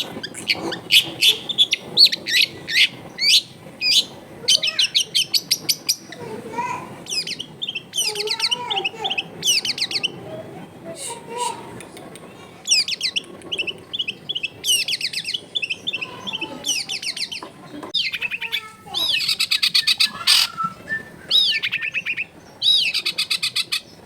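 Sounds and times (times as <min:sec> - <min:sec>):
bird singing sharp chirps: 0:07.1 - 0:10.2, 0:18.0 - 0:24.0.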